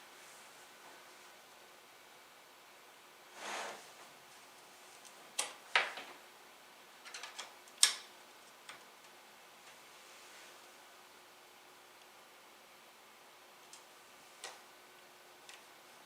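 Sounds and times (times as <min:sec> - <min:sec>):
soft rush of air: 0:03.2 - 0:05.1, 0:09.7 - 0:11.2.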